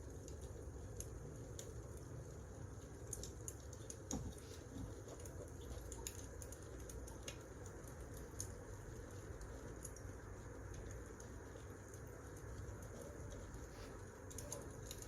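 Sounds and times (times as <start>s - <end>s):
wood fire crackling: 0.1s - 15.0s.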